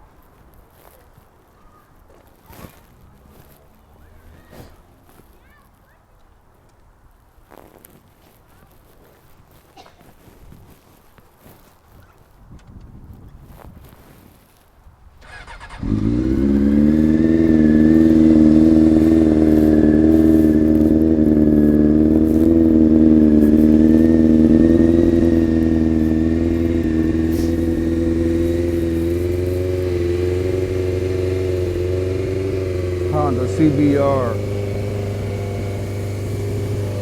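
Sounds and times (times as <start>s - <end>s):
motorcycle engine idling: 15.2s - 37.0s.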